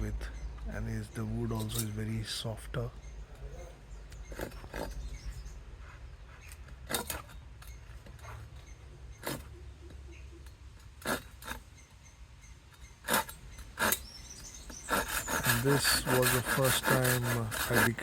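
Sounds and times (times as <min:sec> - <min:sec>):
wood scraping or knocking: 0:13.0 - 0:18.0.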